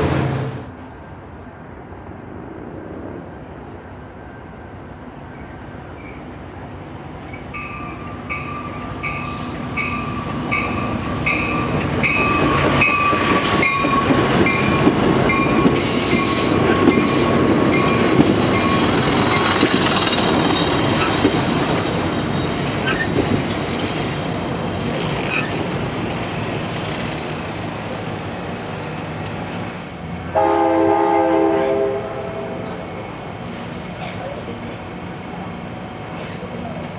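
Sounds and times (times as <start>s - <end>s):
train wheels rumbling on rails: 0.0s - 30.6s, 31.4s - 36.9s
train horn: 30.3s - 32.8s.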